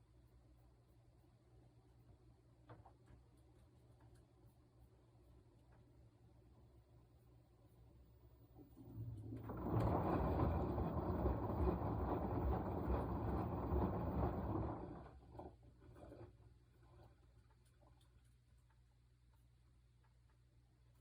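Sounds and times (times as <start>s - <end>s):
washing machine churning: 8.4s - 18.1s.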